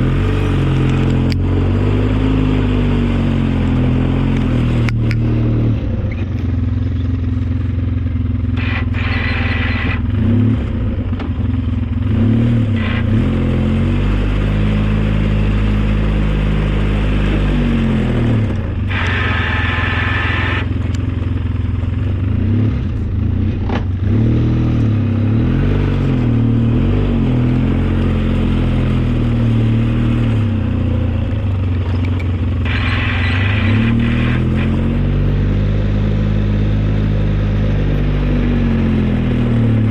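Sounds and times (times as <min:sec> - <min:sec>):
snowplow engine running under load: 0:00.0 - 0:39.9
harsh high-pitched noise: 0:32.7 - 0:35.0.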